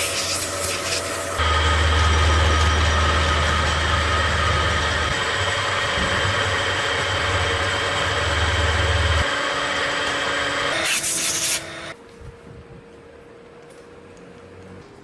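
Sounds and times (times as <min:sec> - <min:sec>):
power tool motor hum and whine: 0:00.0 - 0:12.0.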